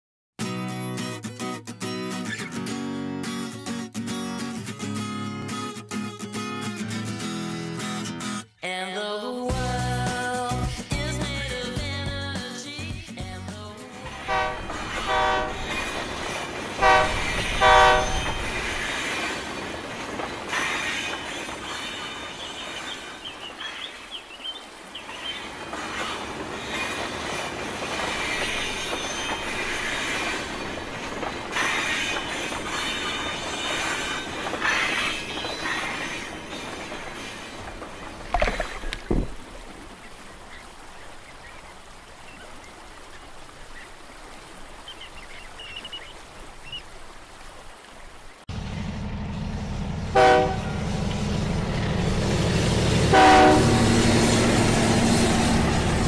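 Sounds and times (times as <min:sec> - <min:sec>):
train horn blasts: 0:14.1 - 0:16.0, 0:16.7 - 0:18.8, 0:49.8 - 0:51.4, 0:53.0 - 0:54.8
rail cars rumbling and clattering: 0:14.1 - 0:40.9, 0:48.5 - 0:56.0
high wheel squeal: 0:14.9 - 0:19.5, 0:25.8 - 0:30.8, 0:31.5 - 0:37.6.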